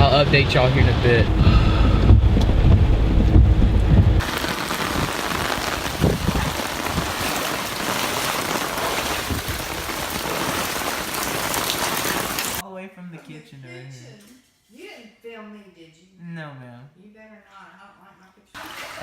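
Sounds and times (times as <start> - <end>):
low rumble: 0.0 - 7.1
heavy rain hissing: 4.2 - 12.6.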